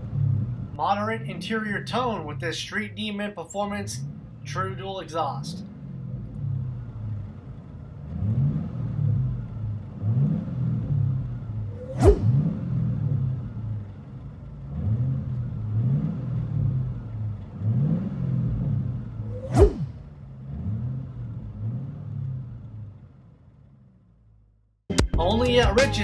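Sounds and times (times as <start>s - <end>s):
car engine accelerating: 0.0s - 24.6s
sharp whoosh: 11.7s - 12.6s, 19.2s - 20.1s.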